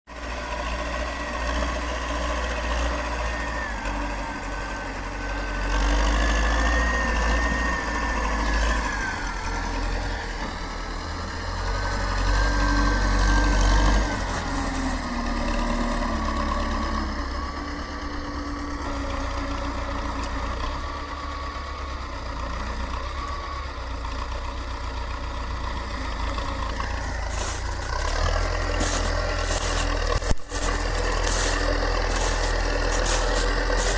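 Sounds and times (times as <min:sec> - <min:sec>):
tractor diesel engine running: 0:00.1 - 0:33.9
thin wandering whine: 0:02.8 - 0:21.8, 0:26.8 - 0:33.9.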